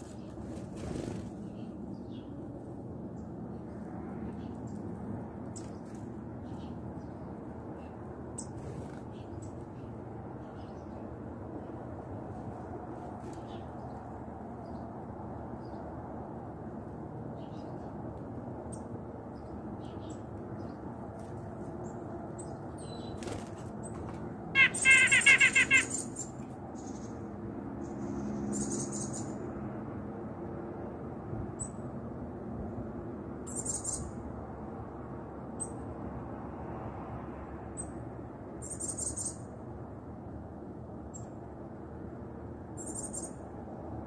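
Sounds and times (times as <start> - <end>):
bird twittering and chips: 22.8 - 27.2.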